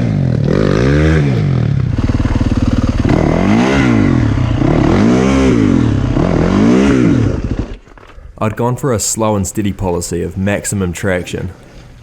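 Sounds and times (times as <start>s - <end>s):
dirt bike engine revving: 0.0s - 8.7s.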